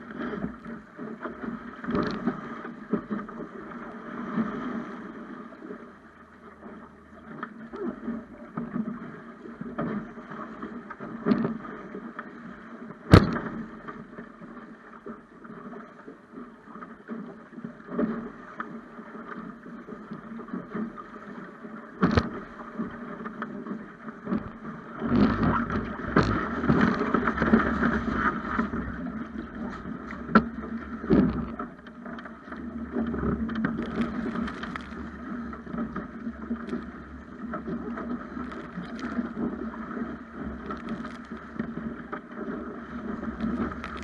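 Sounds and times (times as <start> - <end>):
water rushing along a boat hull: 0.0 - 44.0
wind on microphone: 24.3 - 31.6.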